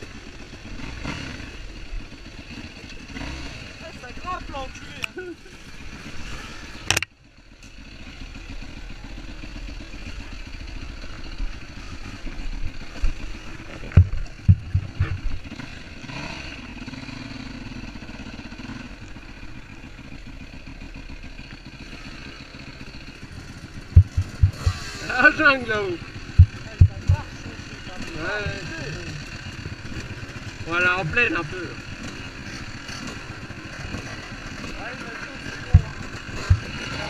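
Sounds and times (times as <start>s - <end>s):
motorcycle engine running: 0.0s - 37.0s
sharp click: 6.8s - 7.1s
low knocks: 13.9s - 15.4s, 23.9s - 24.8s.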